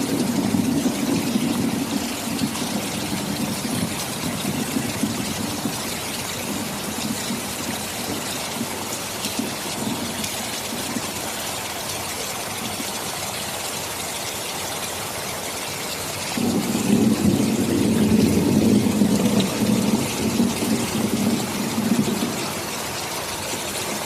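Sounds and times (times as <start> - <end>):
rolling thunder: 0.0 - 11.4, 16.4 - 24.0
heavy rain falling: 0.0 - 24.0.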